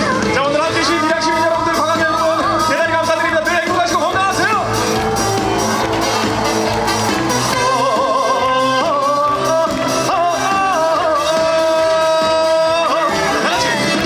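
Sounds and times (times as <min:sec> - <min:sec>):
man singing: 0:00.0 - 0:04.7, 0:07.5 - 0:14.0
amplified band with steady beat: 0:00.0 - 0:14.0.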